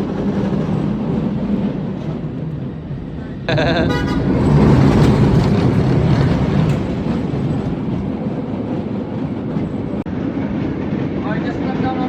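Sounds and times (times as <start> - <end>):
heavy vehicle rumbling past: 3.0 - 8.2.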